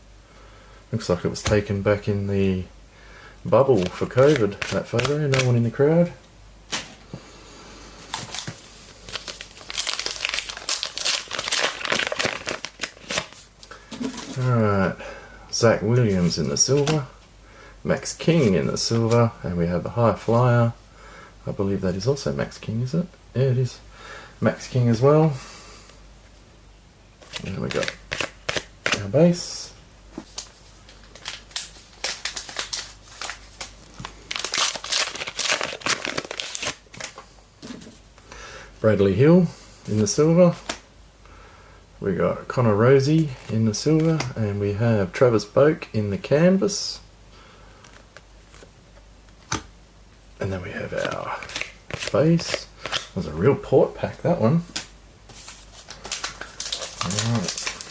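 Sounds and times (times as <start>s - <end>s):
wrapper crinkling and tearing: 3.7s - 5.7s, 8.1s - 14.5s, 27.2s - 29.1s, 30.3s - 37.2s, 50.8s - 53.2s, 54.8s - 57.9s.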